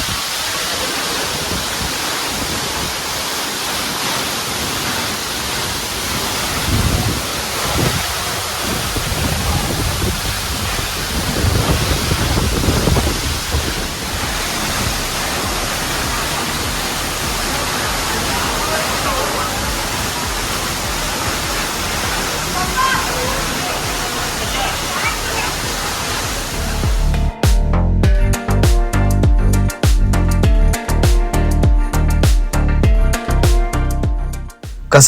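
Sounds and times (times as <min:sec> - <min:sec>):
waterfall roaring: 0:00.0 - 0:27.3.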